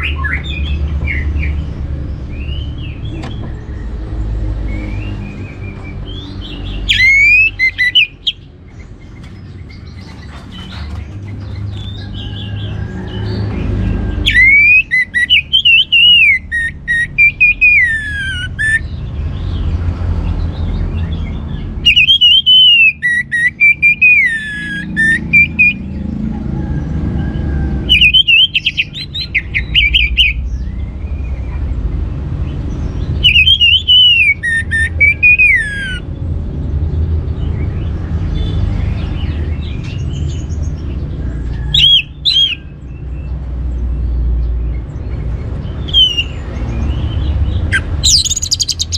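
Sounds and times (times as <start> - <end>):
thrush singing whistled notes: 4.6 - 8.5, 14.1 - 18.9, 21.8 - 26.0, 27.8 - 30.6, 33.2 - 36.0, 41.5 - 43.0, 45.7 - 48.9.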